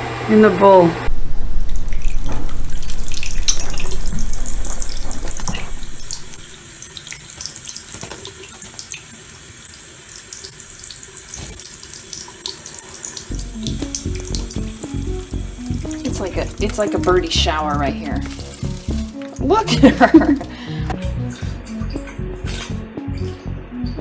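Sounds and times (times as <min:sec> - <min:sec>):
tap water running into bowl: 0:01.7 - 0:24.0.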